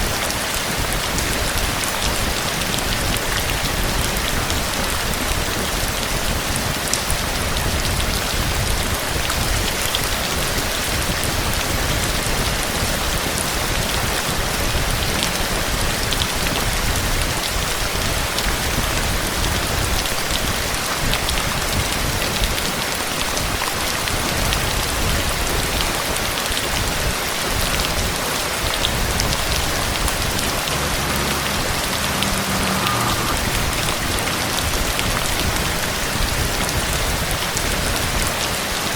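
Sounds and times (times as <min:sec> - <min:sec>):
heavy rain hissing: 0:00.0 - 0:38.9
low rumble: 0:27.8 - 0:37.5.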